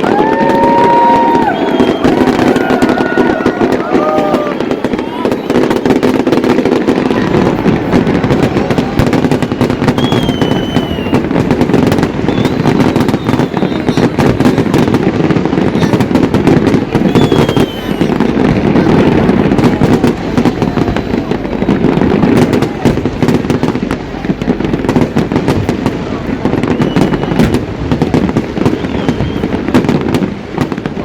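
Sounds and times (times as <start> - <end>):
falling firework whistles: 0.0 - 6.7, 8.8 - 15.0, 16.8 - 18.5, 26.5 - 30.0
fireworks bangs and crackles: 0.0 - 31.0.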